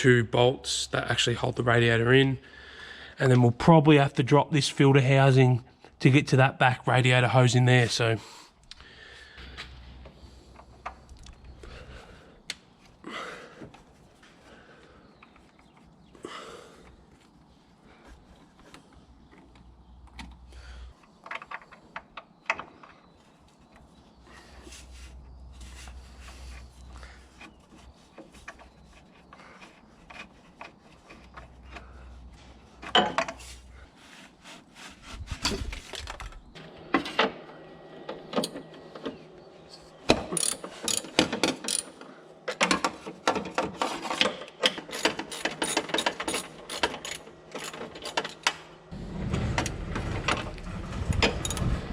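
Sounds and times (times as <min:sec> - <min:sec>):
tools and metal parts knocking: 0:18.6 - 0:23.9, 0:26.2 - 0:33.6, 0:38.1 - 0:51.9
ratchet wrench clicking: 0:40.4 - 0:41.9.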